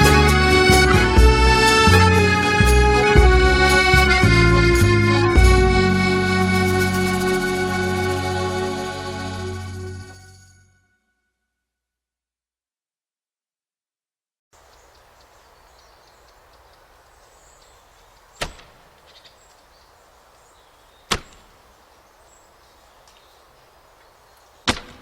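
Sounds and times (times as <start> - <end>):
faint small ticks: 14.6 - 17.0, 23.0 - 23.3.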